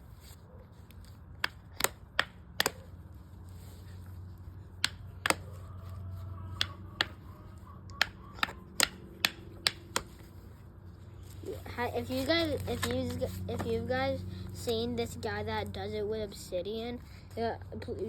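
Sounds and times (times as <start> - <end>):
stone knapping clicks: 7.9 - 10.1.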